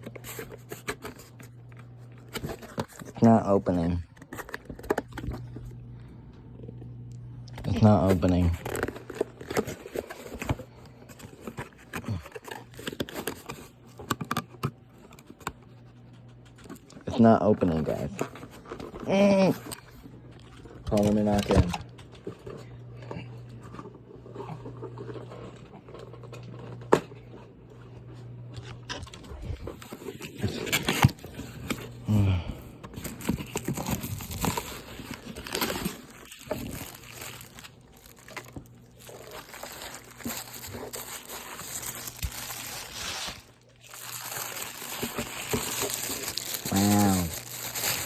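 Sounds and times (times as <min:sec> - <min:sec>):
package clicks and scratches: 0:00.0 - 0:03.2, 0:04.0 - 0:05.6, 0:07.7 - 0:17.0, 0:17.7 - 0:22.7, 0:28.5 - 0:31.9, 0:32.8 - 0:48.0.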